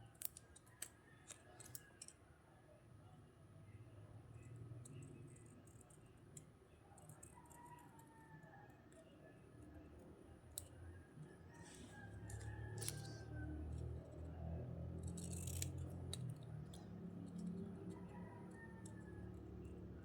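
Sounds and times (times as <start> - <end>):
low background hum: 0.0 - 20.0
scissors cutting paper: 11.7 - 19.7.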